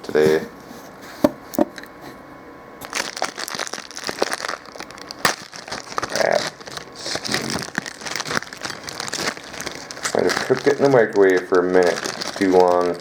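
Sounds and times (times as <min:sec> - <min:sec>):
plastic wrapper crinkling: 0:02.8 - 0:13.0.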